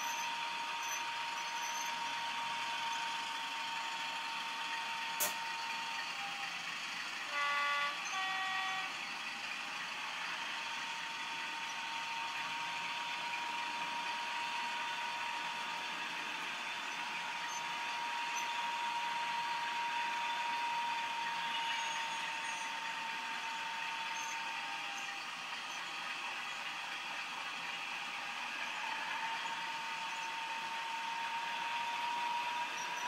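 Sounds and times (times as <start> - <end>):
model diesel engine sound: 0.0 - 33.0
steady whine: 0.0 - 33.0
two-tone horn: 7.2 - 9.2.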